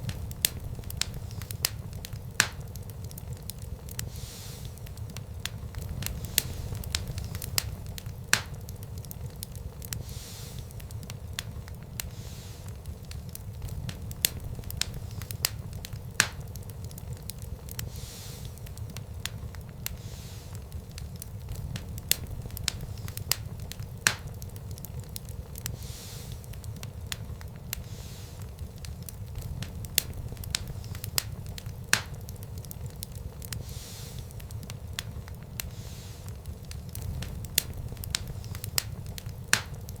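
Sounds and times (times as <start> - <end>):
fire crackling and popping: 0.0 - 40.0
low rumble of flames: 0.0 - 40.0.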